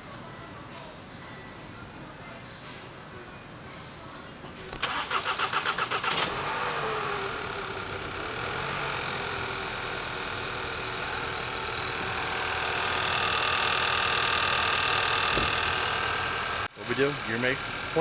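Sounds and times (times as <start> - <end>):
car engine idling: 4.5 - 18.0
starter cranking: 4.7 - 18.0.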